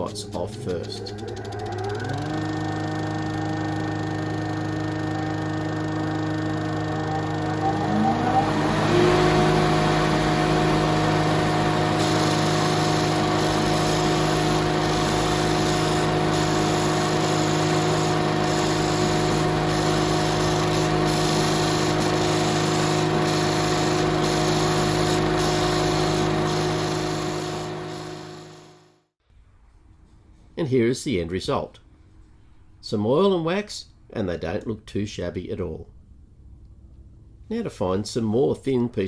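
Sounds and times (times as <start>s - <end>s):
disc sander motor hum: 0.0s - 28.8s
wood grinding on sanding disc: 0.7s - 28.6s.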